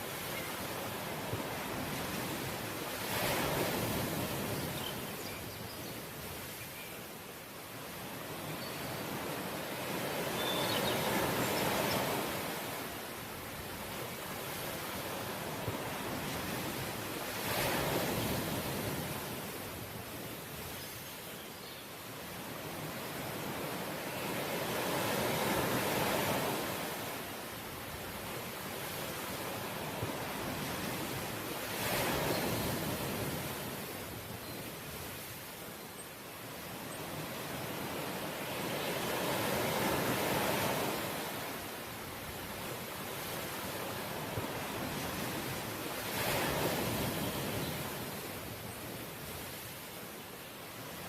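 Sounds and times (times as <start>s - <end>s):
ocean waves breaking on shore: 0.0s - 51.0s
ocean waves breaking: 37.2s - 48.6s.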